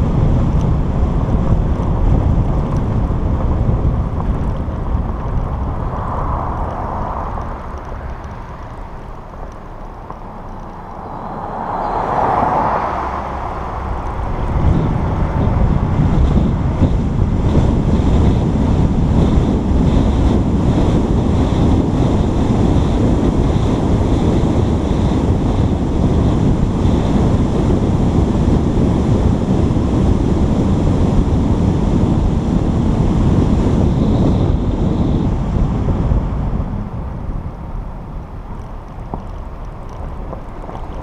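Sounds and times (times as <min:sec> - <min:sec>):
vehicle road noise: 0:00.0 - 0:41.0
wind buffeting microphone: 0:00.0 - 0:41.0
faint high tone: 0:11.0 - 0:12.2.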